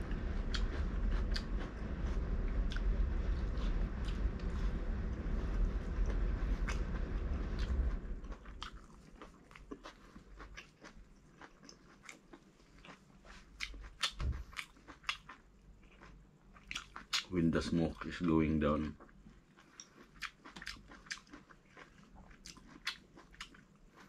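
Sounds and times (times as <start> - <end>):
low rumble: 0.0 - 9.8
crunchy chewing: 0.1 - 24.0.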